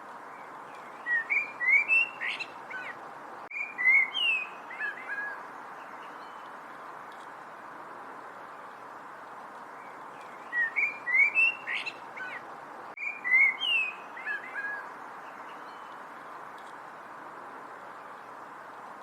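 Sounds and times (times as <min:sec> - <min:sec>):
background hiss: 0:00.0 - 0:19.0
songbird whistled notes: 0:01.0 - 0:02.9, 0:03.5 - 0:05.4, 0:10.2 - 0:12.4, 0:13.0 - 0:14.9.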